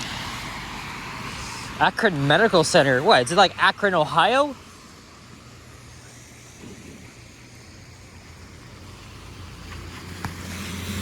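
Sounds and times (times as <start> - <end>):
tyres hissing on wet street: 0.0 - 11.0
vehicle engine hum: 0.0 - 11.0.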